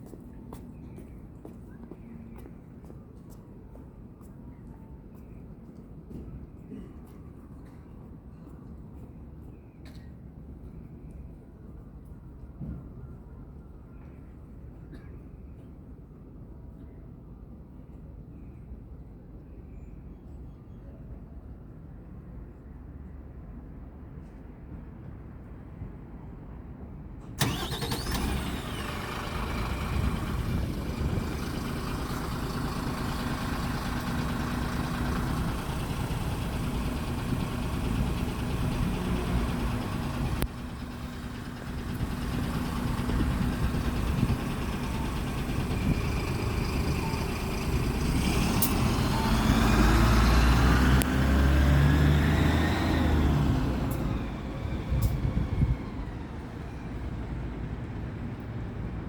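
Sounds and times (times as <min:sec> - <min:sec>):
diesel bus engine idling: 0:27.4 - 0:59.0.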